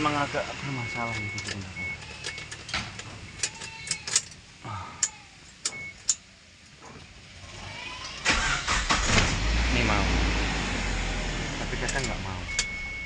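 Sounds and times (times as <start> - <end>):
starter cranking engine: 8.2 - 9.4.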